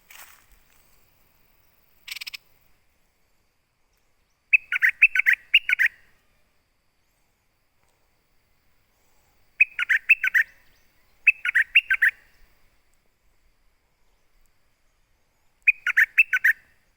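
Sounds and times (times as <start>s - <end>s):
songbird calling: 1.6s - 2.5s, 3.8s - 6.2s, 8.9s - 12.8s, 14.0s - 16.9s.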